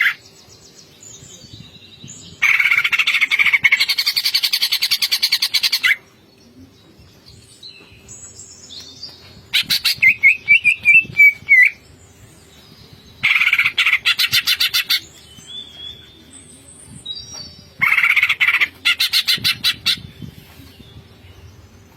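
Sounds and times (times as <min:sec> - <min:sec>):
whistled and chirping bird notes: 0:09.6 - 0:11.8.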